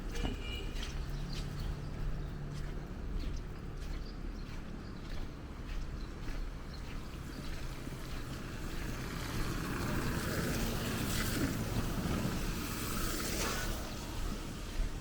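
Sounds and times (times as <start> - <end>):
vehicle passing on wet street: 6.6 - 15.0.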